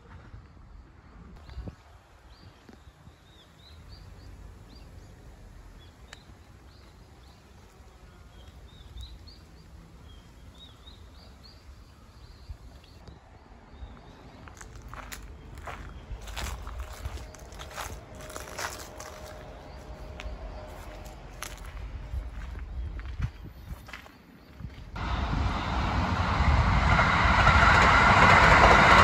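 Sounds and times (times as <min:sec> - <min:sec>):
low steady rumble: 0:25.0 - 0:29.0.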